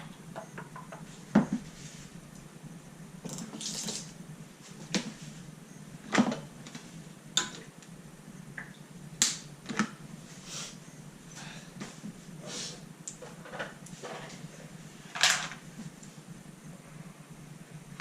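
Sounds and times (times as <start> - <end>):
soft brushing noises: 1.1 - 2.3.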